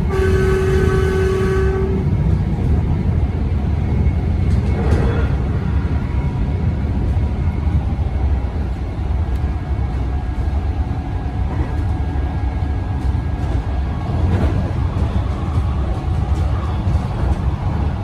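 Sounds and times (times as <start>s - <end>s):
electric train rumble: 0.0s - 18.0s.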